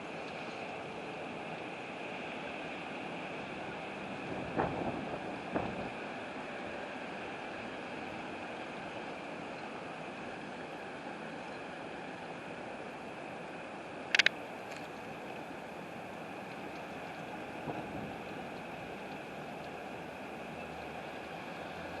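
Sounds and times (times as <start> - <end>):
sharp double click: 14.1 - 14.4.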